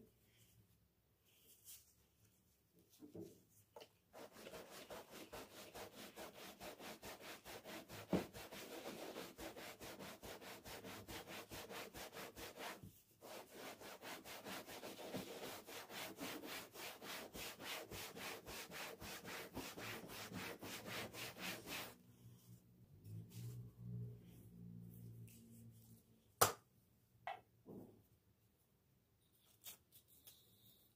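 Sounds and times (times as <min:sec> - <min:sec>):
back-and-forth rubbing strokes: 0:04.1 - 0:24.0.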